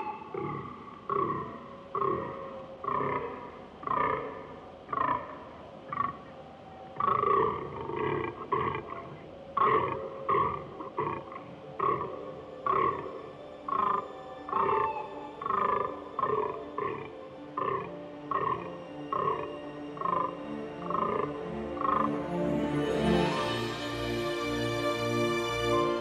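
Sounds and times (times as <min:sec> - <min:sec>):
deer groaning calls: 0:07.0 - 0:22.2.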